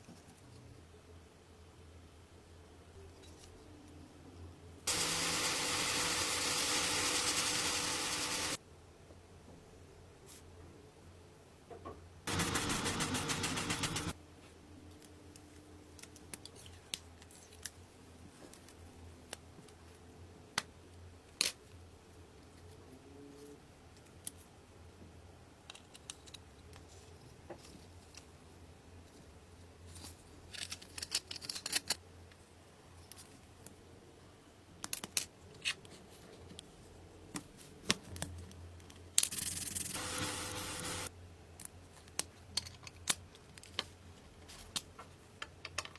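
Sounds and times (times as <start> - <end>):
loud power tool running: 4.9 - 8.6, 12.3 - 14.2, 40.0 - 41.1.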